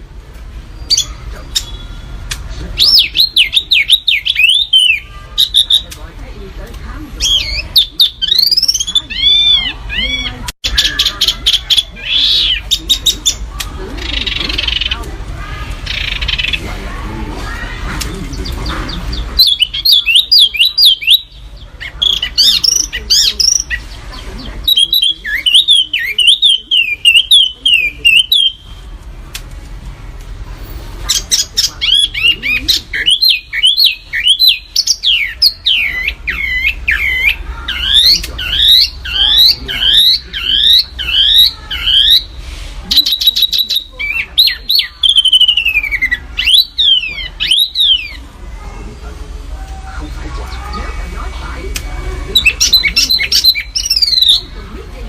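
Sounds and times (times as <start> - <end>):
songbird singing rapid whistles: 0.7 - 6.0, 7.2 - 13.4, 24.6 - 28.9, 31.1 - 48.2, 51.7 - 54.6.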